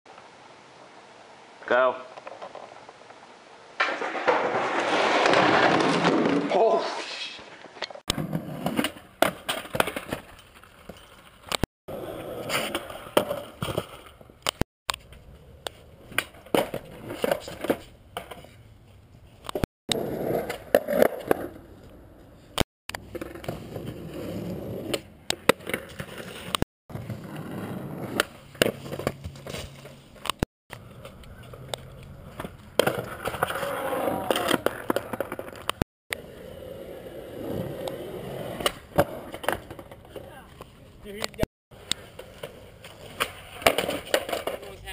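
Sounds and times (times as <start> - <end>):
skateboard wheels rolling on pavement: 0.1 - 44.9
skateboard clacks: 30.2 - 35.8.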